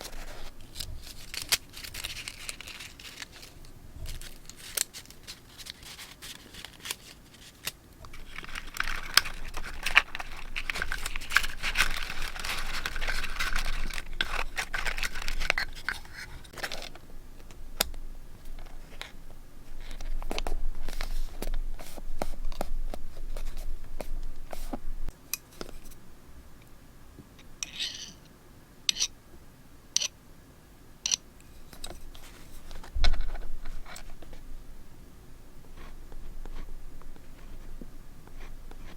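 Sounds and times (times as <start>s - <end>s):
paper crinkling and rustling: 0.0s - 17.6s, 18.4s - 24.9s, 31.5s - 34.5s, 35.6s - 38.9s.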